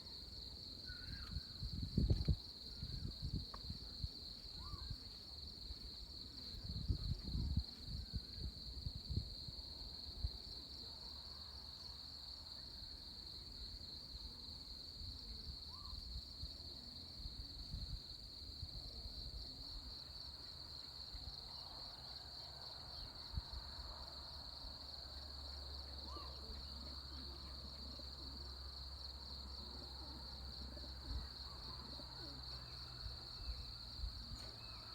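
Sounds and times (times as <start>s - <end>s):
high-pitched insect chorus: 0.1s - 34.9s
wind gusting on microphone: 1.3s - 4.0s, 6.5s - 9.6s.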